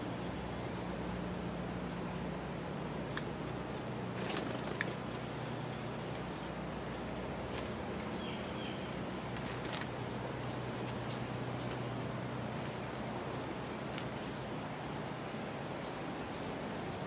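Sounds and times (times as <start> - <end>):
small bird chirping: 3.0 - 5.6.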